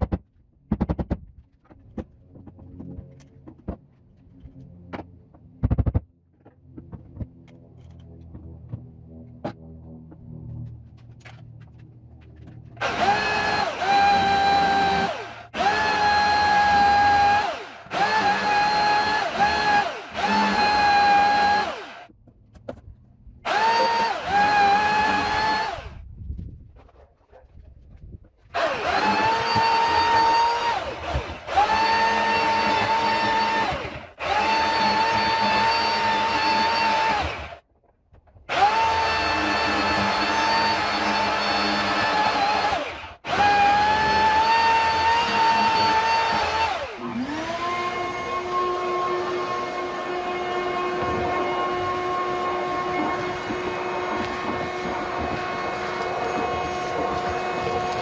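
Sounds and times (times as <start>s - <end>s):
chainsaw cutting wood: 12.4s - 22.1s, 23.4s - 26.0s, 28.4s - 37.6s, 38.5s - 58.0s.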